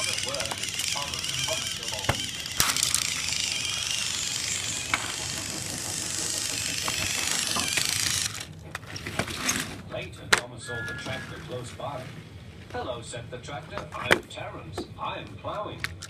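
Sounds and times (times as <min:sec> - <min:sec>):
toy motor and gears whirring: 0:00.0 - 0:09.8.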